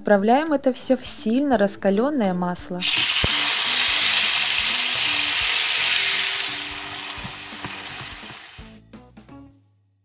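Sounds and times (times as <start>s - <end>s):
vegetables sizzling in hot oil: 2.8s - 8.8s.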